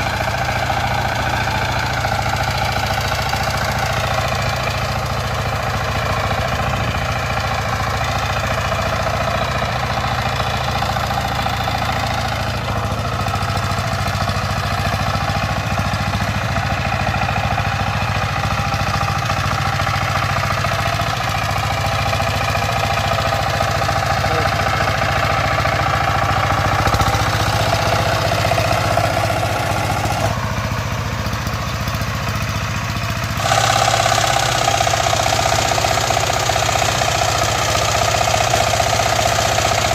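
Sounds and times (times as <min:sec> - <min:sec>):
power tiller engine running: 0:00.0 - 0:39.9.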